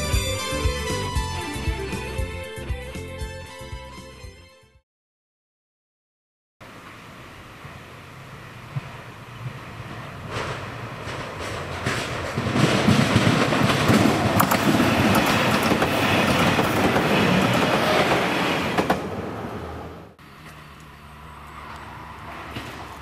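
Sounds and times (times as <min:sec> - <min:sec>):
diesel train running past: 0:06.6 - 0:23.0
wheels clacking over rail joints: 0:08.7 - 0:19.2.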